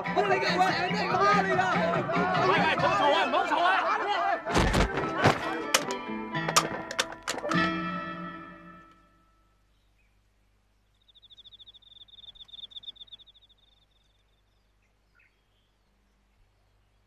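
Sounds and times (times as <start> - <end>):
cricket chirping: 10.7 - 15.9.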